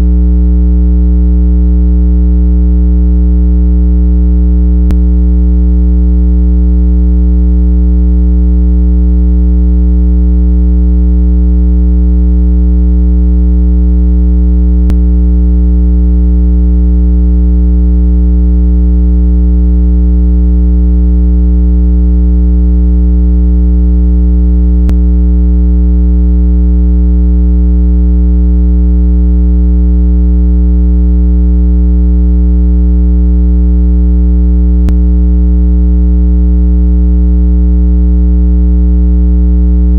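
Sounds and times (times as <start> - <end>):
low electronic tone: 0.0 - 0.6, 4.5 - 6.5, 14.4 - 16.2, 24.7 - 25.2, 34.8 - 35.3.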